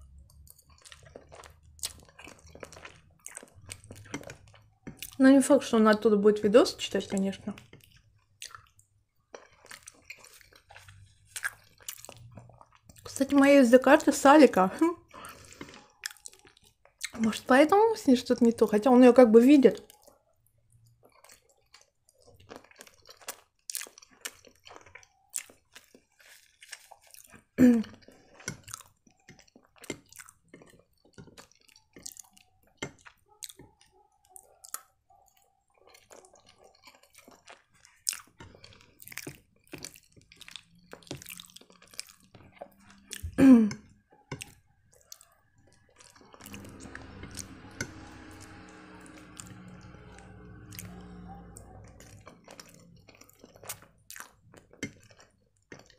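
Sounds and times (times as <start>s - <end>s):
chewing soft pasta: 0.0s - 55.9s
low steady hum: 46.4s - 53.4s.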